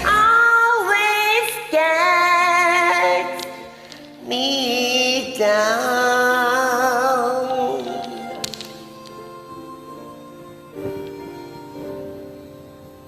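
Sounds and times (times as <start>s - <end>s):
woman singing with vibrato: 0.0s - 8.7s
karaoke backing track: 0.0s - 10.0s.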